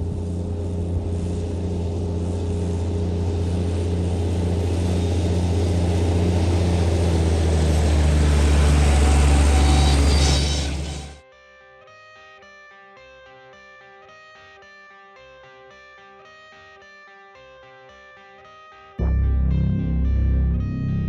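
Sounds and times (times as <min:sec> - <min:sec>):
tractor engine running: 0:00.0 - 0:11.2, 0:19.0 - 0:21.0
faint guitar music: 0:08.9 - 0:21.0.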